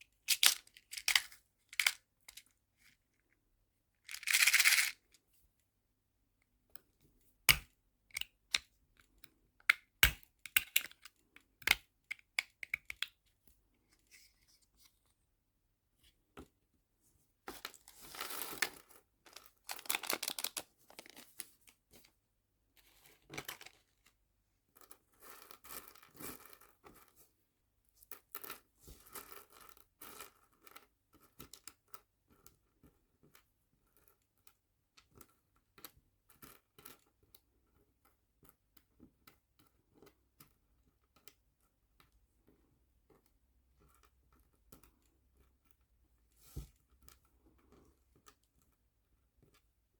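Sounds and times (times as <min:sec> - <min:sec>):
small plastic objects clicking: 0:00.3 - 0:02.4, 0:04.1 - 0:05.0, 0:07.5 - 0:13.2, 0:19.3 - 0:21.2
plastic packaging rustling: 0:04.1 - 0:05.0, 0:17.5 - 0:22.1.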